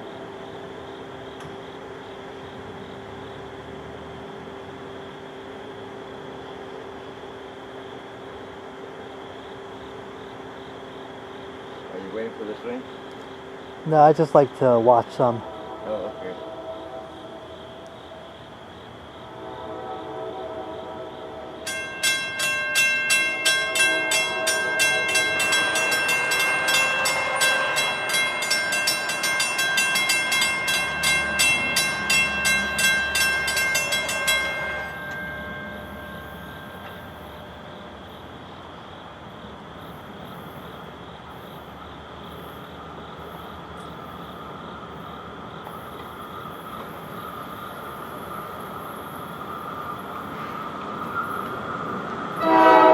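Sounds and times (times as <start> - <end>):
train rumbling by: 0.0 - 52.9
train bell ringing: 21.6 - 38.3, 45.8 - 52.9.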